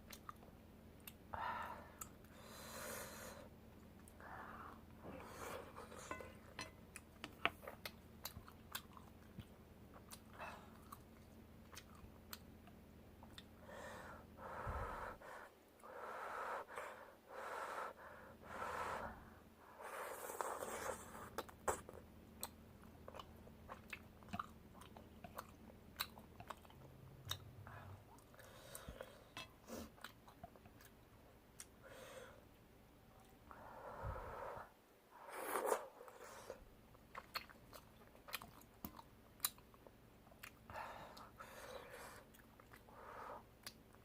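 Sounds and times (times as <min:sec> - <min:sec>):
close-miked chewing: 0:05.3 - 0:13.5, 0:20.3 - 0:31.8, 0:35.6 - 0:44.0.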